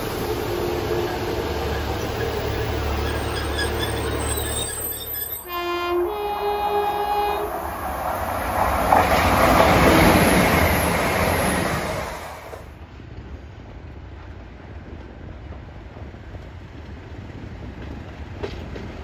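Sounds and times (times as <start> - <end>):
train engine and wheel noise: 0.0 - 19.0
two-note train horn: 5.4 - 7.8.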